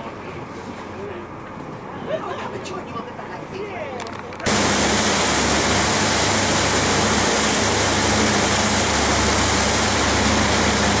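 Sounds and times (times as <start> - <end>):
rushing wind and water: 4.4 - 11.0
boat engine drone: 4.5 - 11.0.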